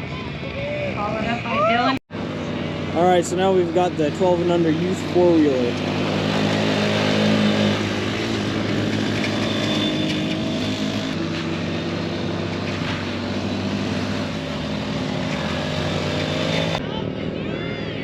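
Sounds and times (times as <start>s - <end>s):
small atv engines revving: 2.1s - 18.0s.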